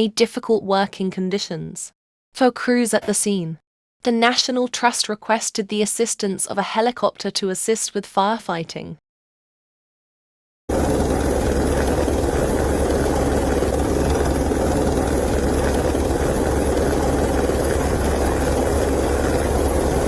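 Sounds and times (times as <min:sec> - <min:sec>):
helicopter rotor and engine drone: 0:10.7 - 0:20.0.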